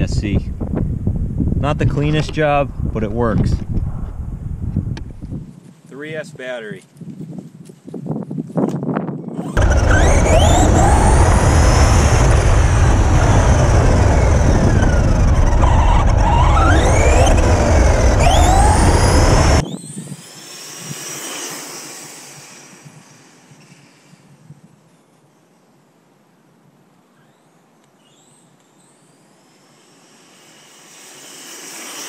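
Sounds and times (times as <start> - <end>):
wind rumble on microphone: 0.0 - 21.0
electric motor whining: 9.3 - 24.2, 28.1 - 32.0.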